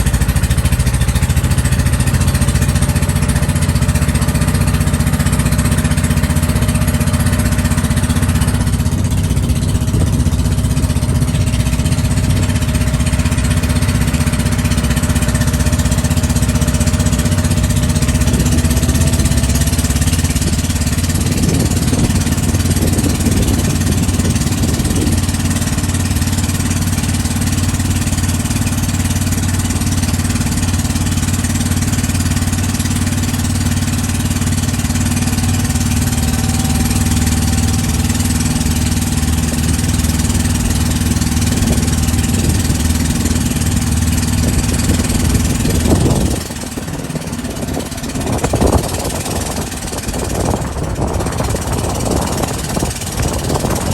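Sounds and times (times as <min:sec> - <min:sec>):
boat engine running: 0:00.0 - 0:53.9
constant rushing noise: 0:00.0 - 0:53.9.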